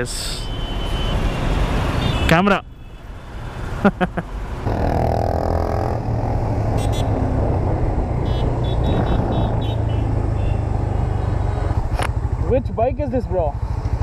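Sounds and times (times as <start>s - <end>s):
motorcycle engine and wind rumble: 4.7s - 14.0s.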